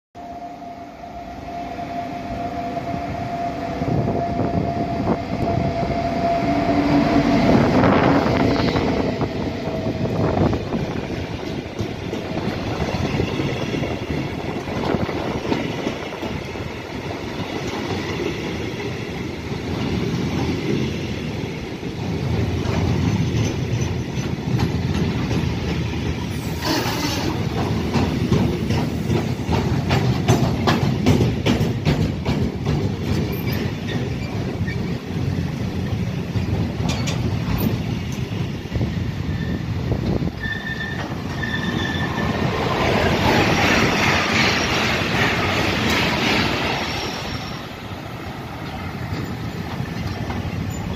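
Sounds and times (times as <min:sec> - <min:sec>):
train wheels rumbling on rail: 0:01.5 - 0:50.9
rapid clacks over rail joints: 0:10.6 - 0:13.4, 0:22.0 - 0:38.4, 0:42.2 - 0:47.2, 0:48.5 - 0:50.9.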